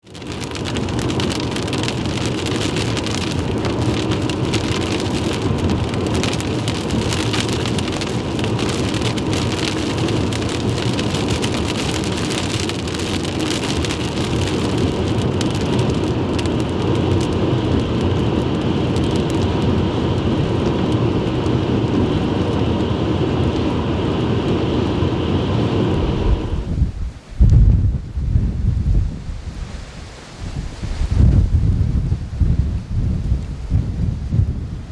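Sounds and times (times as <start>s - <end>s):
heavy rain on a vehicle: 0.0s - 26.8s
wind rushing: 19.6s - 34.9s.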